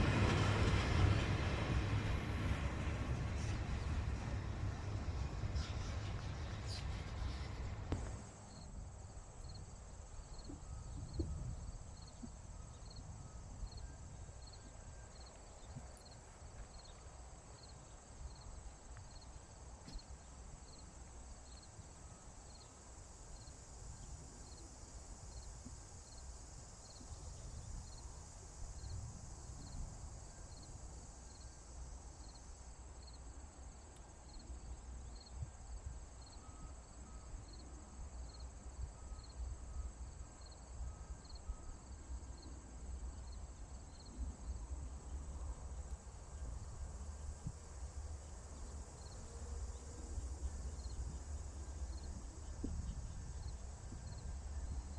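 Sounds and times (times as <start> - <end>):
low outdoor rumble: 0.0 - 9.2
cricket chirps: 0.0 - 54.9
insects trilling: 8.5 - 54.9.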